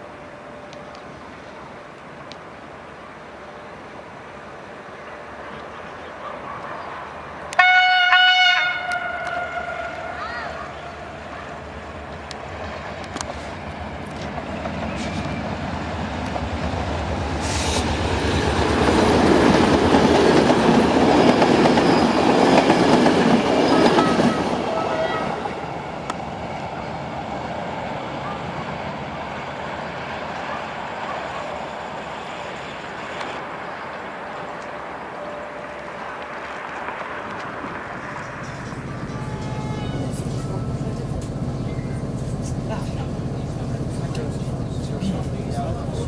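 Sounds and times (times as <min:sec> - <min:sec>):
diesel locomotive engine: 0:00.0 - 0:46.0
train wheels rattling on rails: 0:08.8 - 0:46.0.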